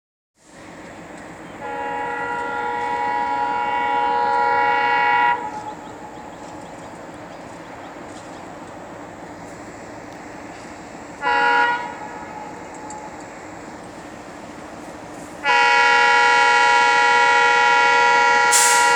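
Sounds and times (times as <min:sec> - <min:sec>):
train rumbling: 0:00.4 - 0:18.9
train horn blasts: 0:01.6 - 0:06.6, 0:11.2 - 0:13.2, 0:15.4 - 0:18.9.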